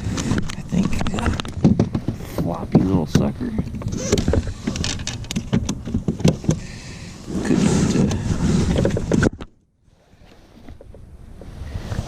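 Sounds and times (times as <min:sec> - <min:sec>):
rustling noise: 0:07.2 - 0:09.5.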